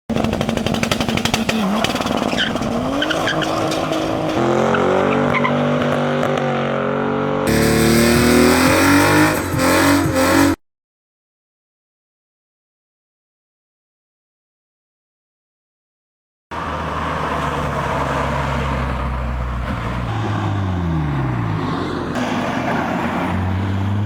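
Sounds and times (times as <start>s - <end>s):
car engines revving: 0.1s - 10.6s, 16.5s - 24.0s
tire squeal: 1.0s - 6.5s, 7.5s - 10.6s, 16.6s - 23.6s.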